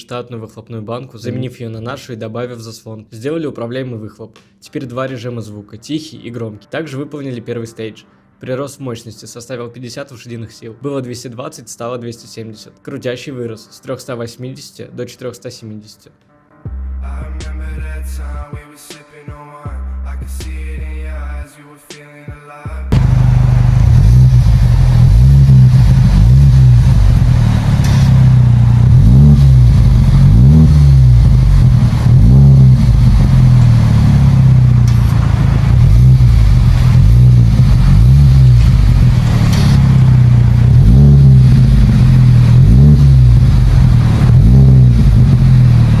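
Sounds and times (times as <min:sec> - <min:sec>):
car engine revving: 0:22.9 - 0:46.0.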